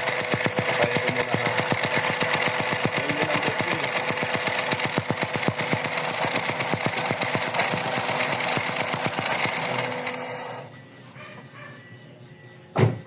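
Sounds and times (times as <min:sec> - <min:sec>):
car engine running roughly: 0:00.0 - 0:10.0.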